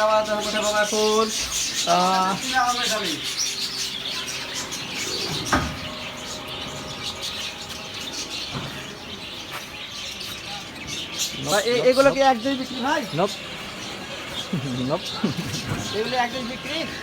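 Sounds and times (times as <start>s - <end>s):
budgerigars chirping: 0.0s - 17.0s.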